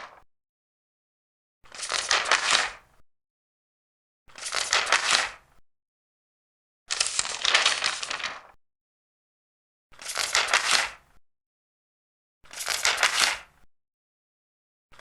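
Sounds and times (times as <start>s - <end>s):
paper pages turning: 0.0s - 0.2s, 1.7s - 2.8s, 4.3s - 5.4s, 6.9s - 8.6s, 10.0s - 11.0s, 12.5s - 13.5s.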